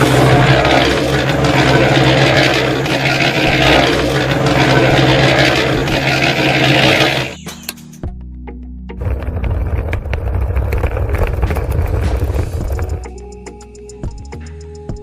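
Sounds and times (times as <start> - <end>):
rough grinding noise: 0.0 - 7.4, 9.0 - 13.0.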